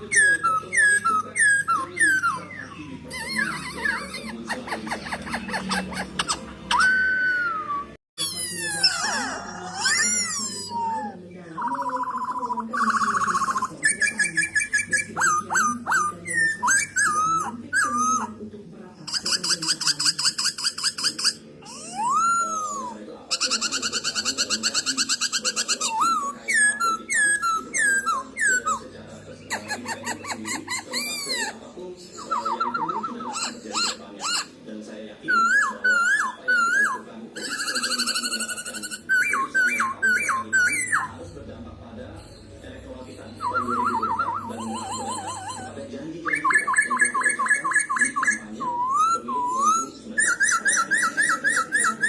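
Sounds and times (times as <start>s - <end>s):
bird trilling: 0.0s - 52.0s
bird singing whistled phrases: 43.4s - 45.6s.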